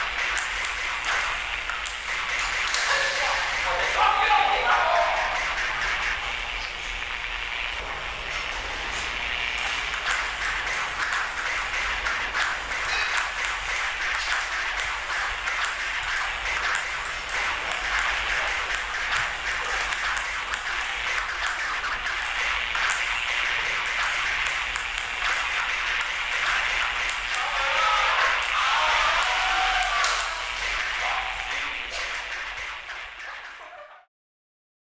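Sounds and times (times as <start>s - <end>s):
steady hiss: 0.0s - 33.2s
ping-pong ball clicking: 0.1s - 3.7s, 9.6s - 27.5s, 29.2s - 33.4s.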